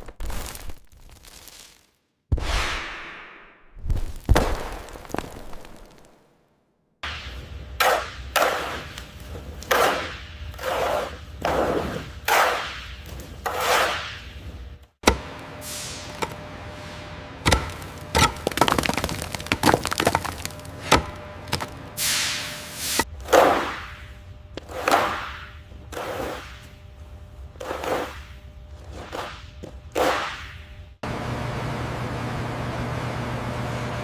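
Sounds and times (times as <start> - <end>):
low steady hum: 14.4 - 23.3.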